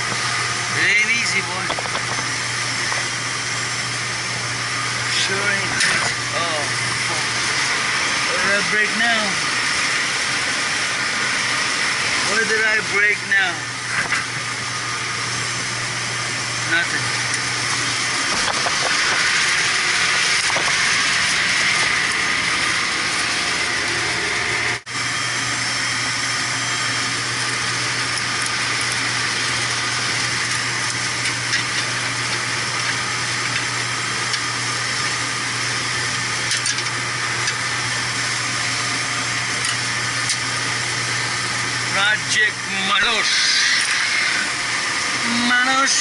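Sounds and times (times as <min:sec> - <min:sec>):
low machinery hum: 0:00.0 - 0:46.0
machinery hiss: 0:43.0 - 0:44.9.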